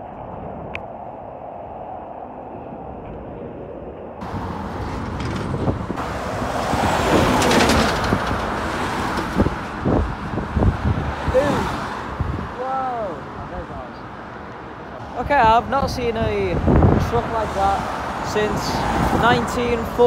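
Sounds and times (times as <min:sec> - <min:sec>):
truck driving past: 0:04.2 - 0:10.0.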